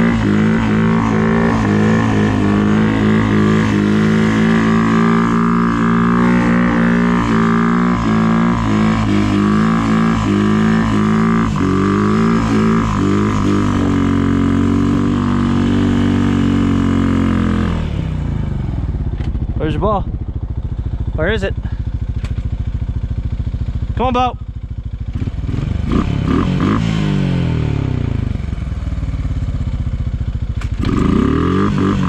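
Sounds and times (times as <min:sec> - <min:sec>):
vehicle engine revving: 0:00.0 - 0:19.8, 0:25.1 - 0:28.6, 0:30.6 - 0:32.0.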